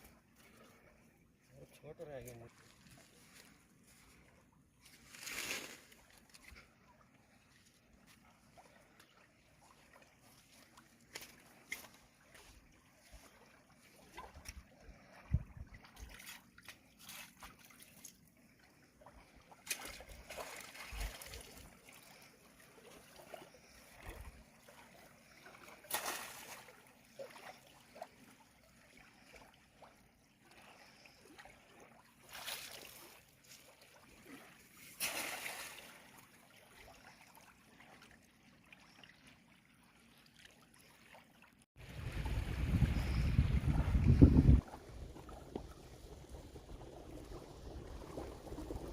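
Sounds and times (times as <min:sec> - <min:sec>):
water splashing and trickling: 0:00.0 - 0:48.9
wind buffeting microphone: 0:15.3 - 0:15.8, 0:41.8 - 0:48.9.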